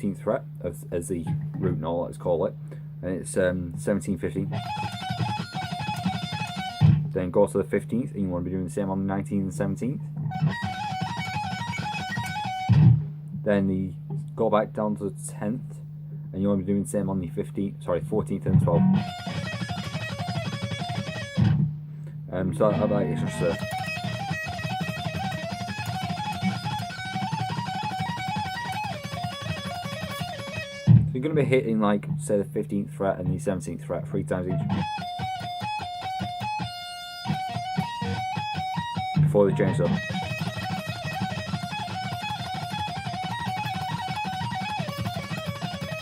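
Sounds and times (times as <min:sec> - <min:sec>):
electric guitar lead phrase: 0:04.4 - 0:07.2, 0:09.6 - 0:13.1, 0:18.0 - 0:21.7, 0:22.3 - 0:31.2, 0:34.0 - 0:46.0.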